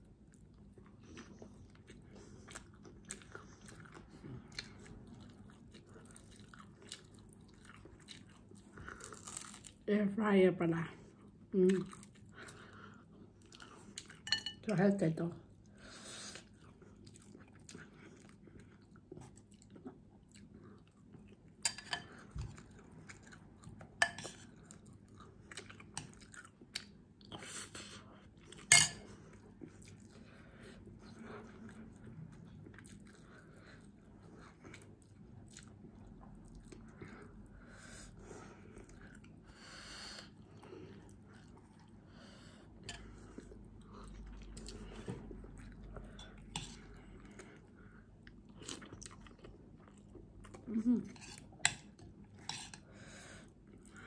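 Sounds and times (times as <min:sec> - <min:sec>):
person chewing: 0:00.2 - 0:09.8, 0:16.3 - 0:37.4, 0:42.7 - 0:54.0.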